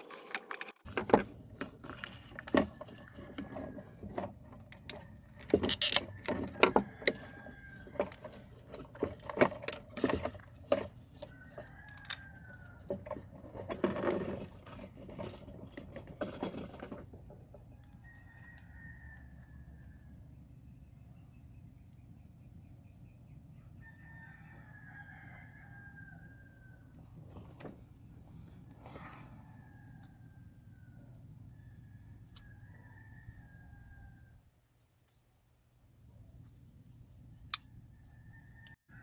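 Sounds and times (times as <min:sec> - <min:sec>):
hand tools clicking and knocking: 0:00.1 - 0:12.2
distant rooster crowing: 0:06.0 - 0:08.2, 0:11.2 - 0:13.1, 0:17.7 - 0:20.3, 0:23.6 - 0:27.2, 0:29.0 - 0:34.4, 0:37.9 - 0:39.0.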